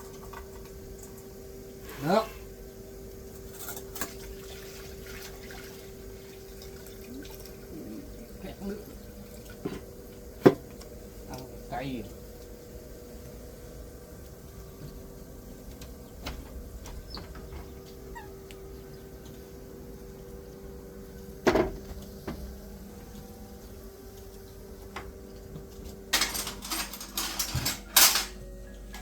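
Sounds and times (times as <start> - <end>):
faint steady hum: 0.0 - 29.0
dishes and utensils clattering: 3.4 - 4.2, 26.1 - 28.4.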